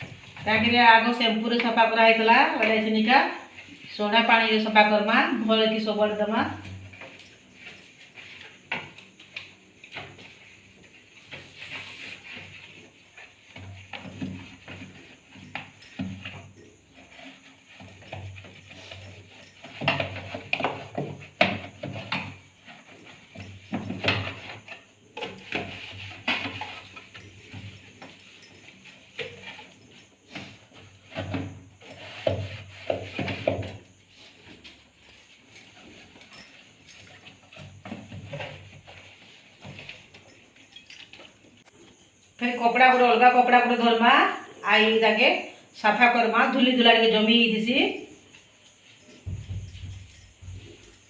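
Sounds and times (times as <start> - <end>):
fridge parts knocking and clattering: 49.2 - 50.9.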